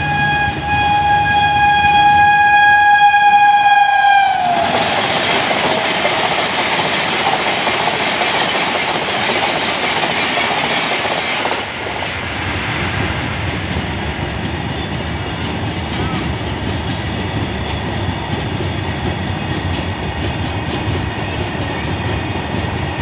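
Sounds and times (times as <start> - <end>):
locomotive horn: 0.0 - 5.0
train coaches rushing past: 4.0 - 23.0.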